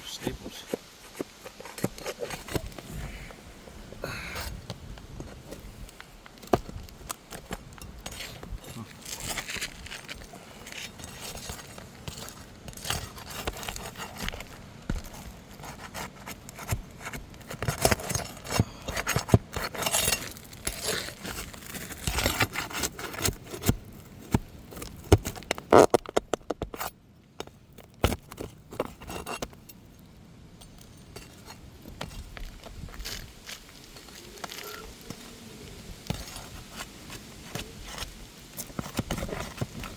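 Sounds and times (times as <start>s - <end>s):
pry bar scraping shingles: 0.4s - 3.4s, 4.1s - 29.7s, 36.0s - 39.9s.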